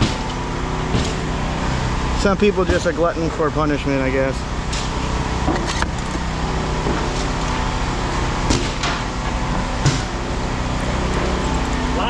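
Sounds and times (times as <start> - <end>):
sharp engine knocks: 0.0 - 1.4, 2.5 - 3.2, 8.4 - 10.2
engine idling: 0.0 - 12.0.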